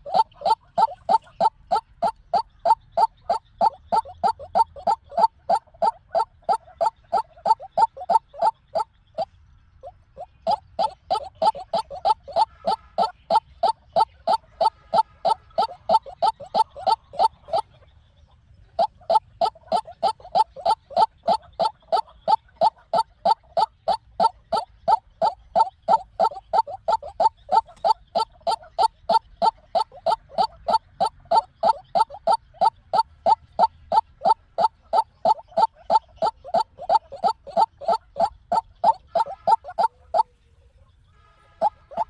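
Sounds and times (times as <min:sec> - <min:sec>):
waterhen calling: 0:00.0 - 0:17.8, 0:18.7 - 0:40.4, 0:41.1 - 0:42.0.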